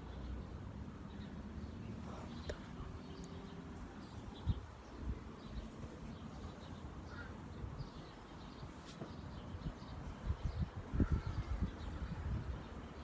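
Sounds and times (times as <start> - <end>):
faint crow calls: 7.0 - 7.6, 10.9 - 11.7
wind rumble: 9.6 - 12.8.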